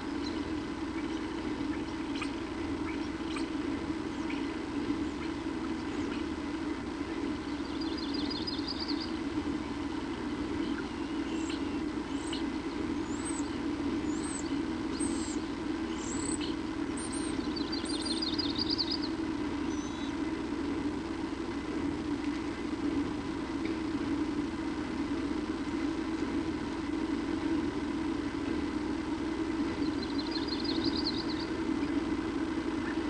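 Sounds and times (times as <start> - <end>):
small birds chirping: 0.0 - 21.3, 26.0 - 33.0
steady low hum: 0.0 - 33.0
bird trill: 7.4 - 9.2, 10.6 - 20.2, 29.8 - 32.0.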